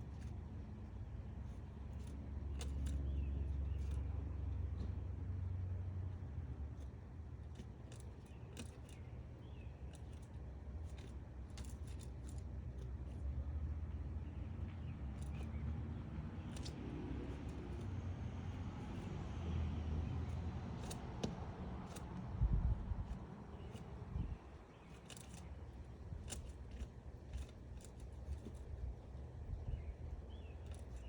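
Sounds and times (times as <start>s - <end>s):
woodpecker tapping wood: 1.4s - 5.2s, 14.0s - 31.0s
low rumble: 21.5s - 24.6s.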